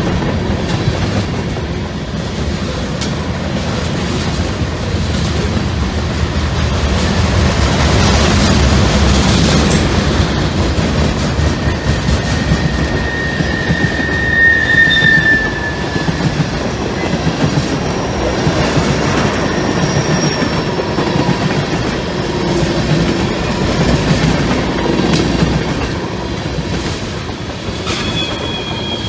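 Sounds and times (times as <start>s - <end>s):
train wheels clattering over rails: 0.0s - 29.0s
high wheel squeal: 11.2s - 21.2s, 27.8s - 29.0s.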